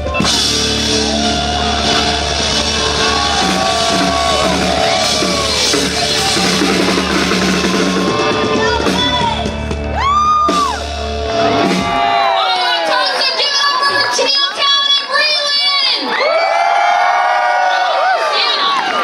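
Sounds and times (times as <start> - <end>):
live rock band playing: 0.0 - 12.5.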